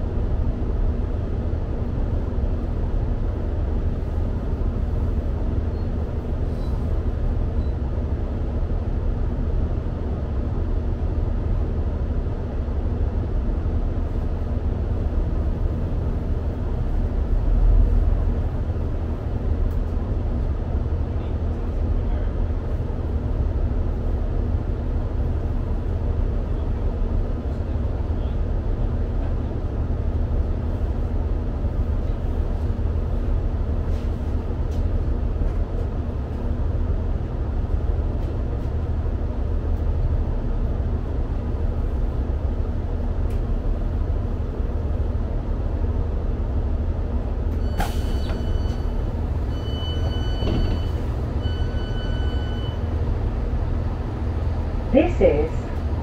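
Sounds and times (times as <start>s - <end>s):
train engine rumble: 0.0s - 56.0s
door alarm beeps: 47.6s - 52.8s.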